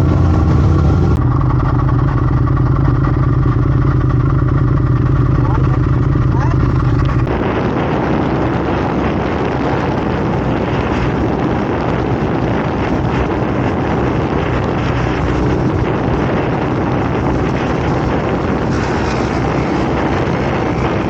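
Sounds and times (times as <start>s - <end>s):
wind rushing over microphone: 0.0s - 1.5s, 6.2s - 21.0s
motorcycle engine drone: 0.0s - 21.0s.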